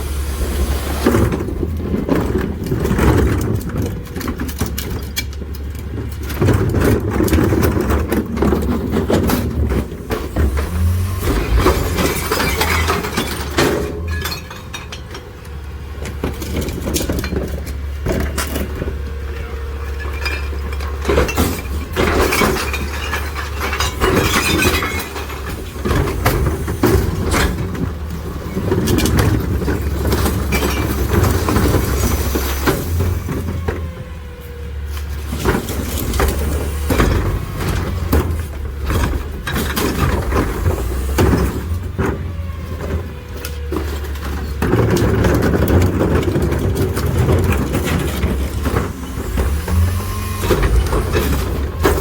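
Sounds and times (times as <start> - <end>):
diesel engine under load: 0.0 - 52.0
glass cracking and clattering: 11.8 - 15.2, 20.0 - 25.8.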